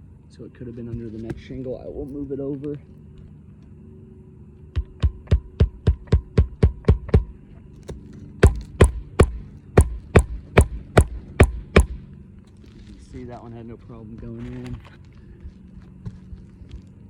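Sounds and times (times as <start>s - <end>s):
hammer driving nails: 8.4s - 12.0s.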